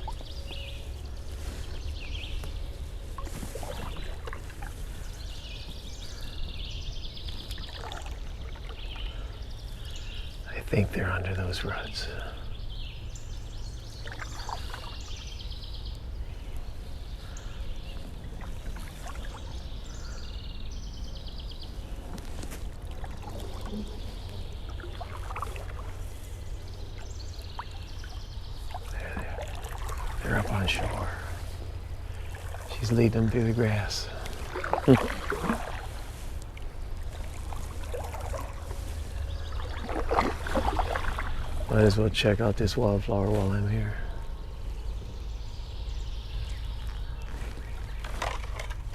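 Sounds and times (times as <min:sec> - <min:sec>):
songbird trilling: 0:00.0 - 0:22.2, 0:22.8 - 0:48.8
steady low rumble: 0:00.0 - 0:48.9
water splashes and drips: 0:02.4 - 0:05.2, 0:07.3 - 0:09.2, 0:14.0 - 0:15.3, 0:18.0 - 0:19.6, 0:22.2 - 0:42.2, 0:46.8 - 0:48.9.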